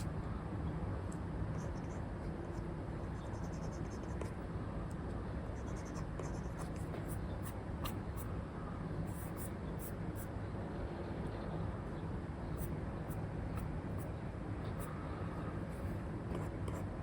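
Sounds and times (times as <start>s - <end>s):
stylus scratching on screen: 5.6s - 8.0s.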